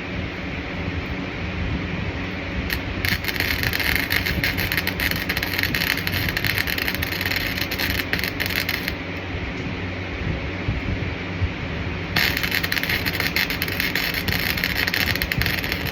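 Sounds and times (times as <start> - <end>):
low steady hum: 0.0 - 15.9
arc welding crackle: 2.2 - 9.6, 12.0 - 15.9.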